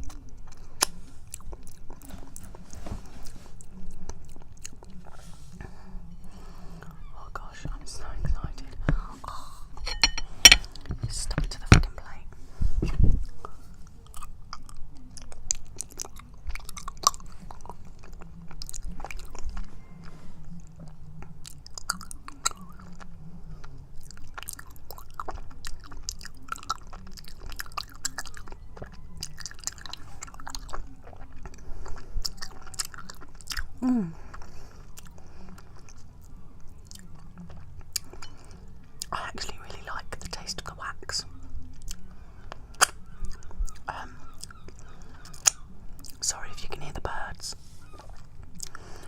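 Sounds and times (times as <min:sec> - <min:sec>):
chewing honeycomb: 0:00.0 - 0:07.1, 0:13.2 - 0:49.0.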